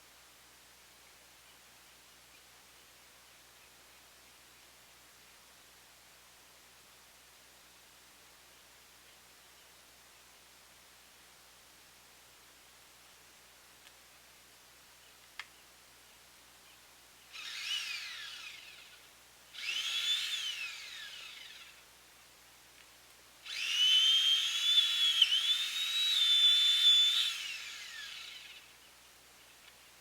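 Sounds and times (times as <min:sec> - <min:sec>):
chainsaw engine revving: 0:17.4 - 0:18.9, 0:19.6 - 0:21.7, 0:23.5 - 0:28.6.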